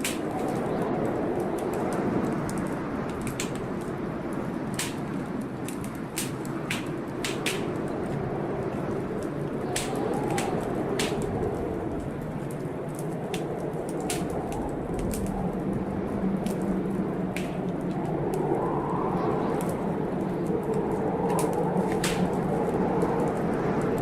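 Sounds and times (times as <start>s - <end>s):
storm rushing and moaning: 0.0s - 24.0s
wood fire crackling and popping: 0.0s - 24.0s.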